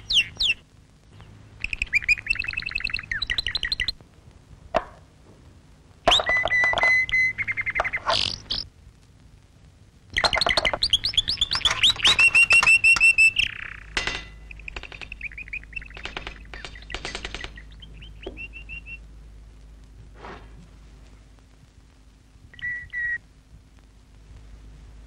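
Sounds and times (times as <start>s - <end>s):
small birds chirping: 0.0s - 4.1s, 6.1s - 8.7s, 10.1s - 21.5s, 22.4s - 23.2s
faint bird call: 6.1s - 8.7s, 10.2s - 19.1s, 22.5s - 23.2s.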